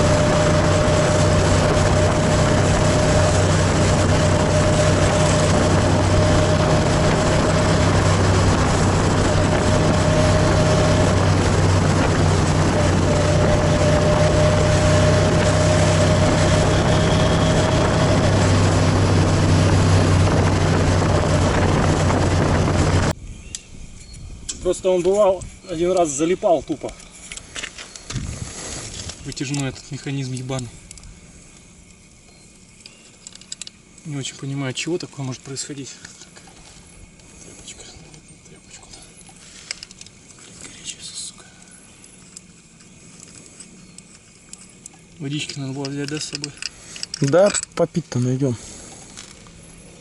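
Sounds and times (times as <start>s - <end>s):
motorcycle engine running: 0.0s - 23.2s
wind buffeting microphone: 0.0s - 25.8s, 28.0s - 29.2s.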